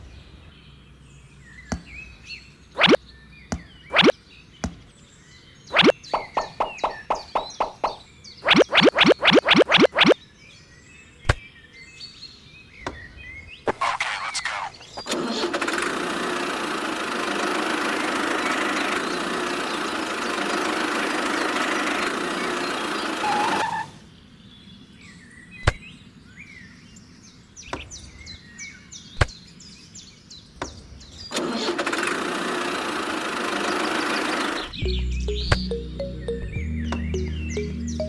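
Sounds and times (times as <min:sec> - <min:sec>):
faint bird chirps: 0:00.0 - 0:15.1
tractor engine running: 0:15.0 - 0:23.6, 0:31.4 - 0:38.0.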